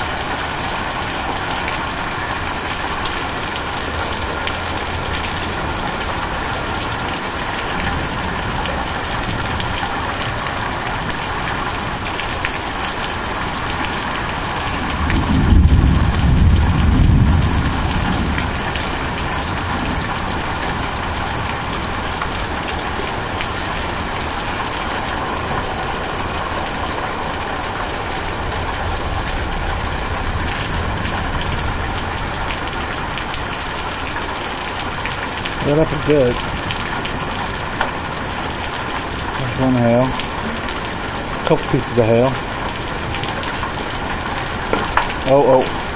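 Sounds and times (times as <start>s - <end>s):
steady rain: 0.0s - 45.9s
thunder rumbling: 14.6s - 24.6s, 28.2s - 33.5s.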